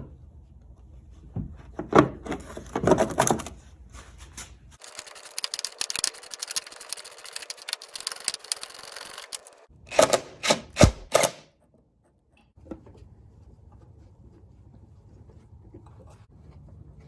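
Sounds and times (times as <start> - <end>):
metal clinks and knocks: 4.8 - 9.6
socket ratchet clicking: 4.8 - 11.4.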